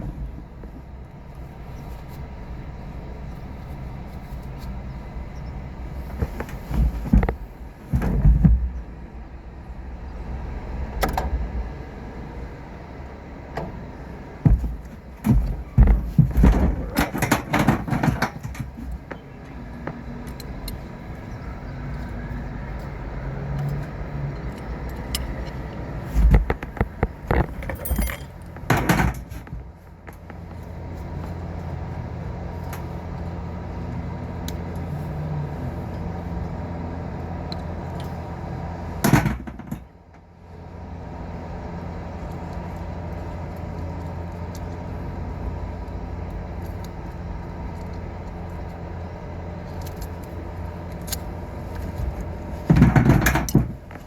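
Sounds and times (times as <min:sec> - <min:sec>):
low machine hum: 0:00.0 - 0:54.0
metallic clattering and knocks: 0:14.4 - 0:20.8, 0:24.4 - 0:30.7, 0:39.0 - 0:40.0, 0:52.0 - 0:54.0.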